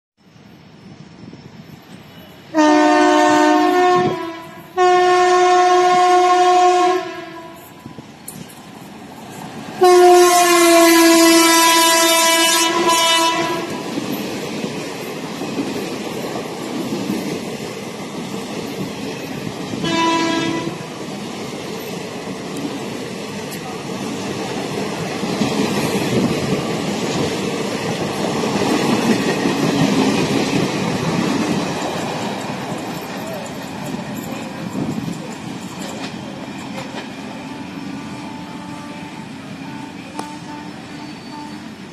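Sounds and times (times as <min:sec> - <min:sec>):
train coaches rumbling and clacking: 0:00.3 - 0:41.9
train horn blasts: 0:02.5 - 0:08.0, 0:09.8 - 0:13.8, 0:19.8 - 0:20.9, 0:37.3 - 0:41.8.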